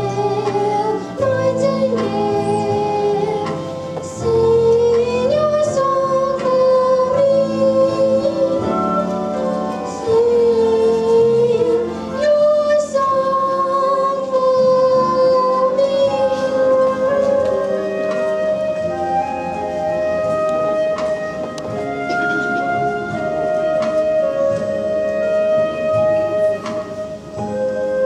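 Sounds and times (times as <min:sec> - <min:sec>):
child singing: 0:00.0 - 0:09.1, 0:09.9 - 0:17.5
instrumental accompaniment: 0:00.0 - 0:28.0.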